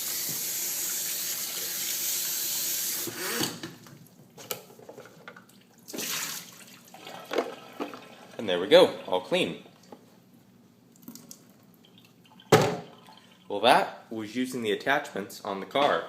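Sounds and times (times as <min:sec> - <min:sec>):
tap water running into tank: 0:00.0 - 0:02.3, 0:05.5 - 0:08.4.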